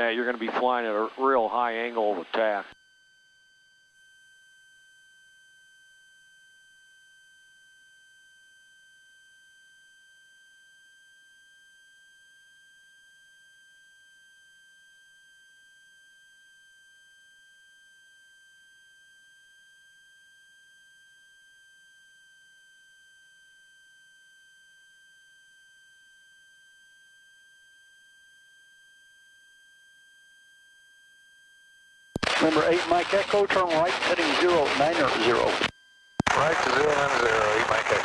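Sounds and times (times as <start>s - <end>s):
high-pitched electronic whine: 0.0s - 12.2s, 32.0s - 38.0s.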